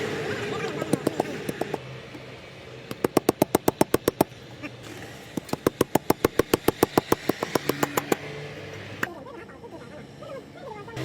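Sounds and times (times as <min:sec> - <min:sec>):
rapid sharp knocks: 0:00.8 - 0:01.8, 0:02.9 - 0:04.3, 0:05.4 - 0:08.2.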